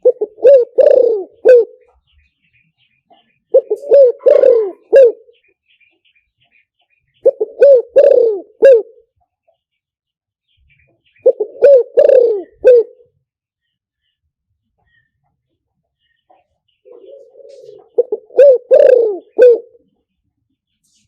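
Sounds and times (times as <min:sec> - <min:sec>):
dove cooing: 0:00.0 - 0:01.9, 0:03.2 - 0:05.4, 0:07.2 - 0:09.0, 0:11.2 - 0:13.2, 0:16.8 - 0:19.9.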